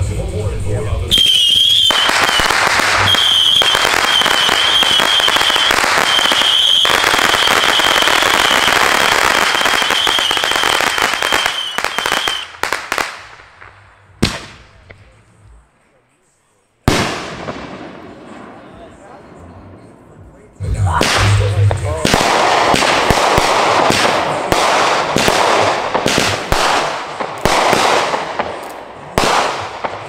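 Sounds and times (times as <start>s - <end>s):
fireworks crackling: 1.0s - 15.8s, 16.8s - 30.0s
shrill firework whistle: 1.1s - 12.5s
sharp firework bangs: 1.1s - 15.0s, 16.9s - 18.8s, 20.9s - 30.0s.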